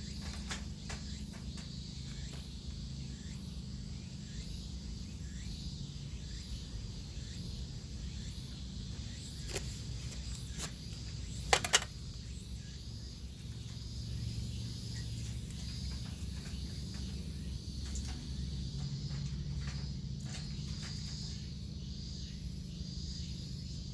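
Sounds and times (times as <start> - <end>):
insects chirping: 0.0 - 23.9
sharp clicks: 11.5 - 11.9.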